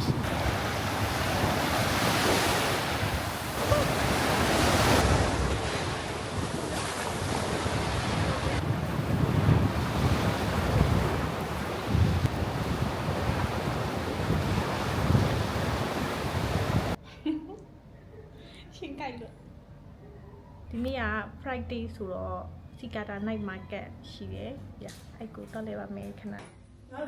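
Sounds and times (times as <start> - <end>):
sea waves washing onto beach: 0.0 - 17.0
wind buffeting microphone: 0.0 - 17.0.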